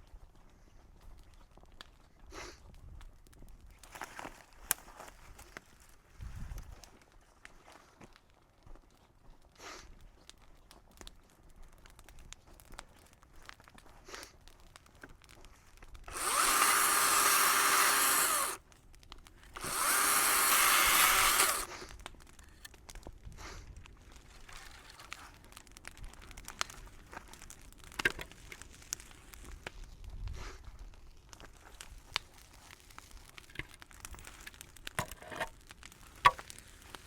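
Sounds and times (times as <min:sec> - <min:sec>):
faint clicks and crackles: 0:00.0 - 0:06.0, 0:06.6 - 0:37.0
power saw cutting brush: 0:16.1 - 0:18.6, 0:19.6 - 0:21.7.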